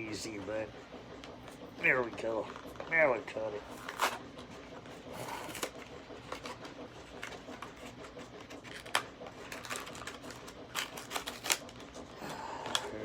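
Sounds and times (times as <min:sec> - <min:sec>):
plastic packaging crackling: 0:08.6 - 0:13.0.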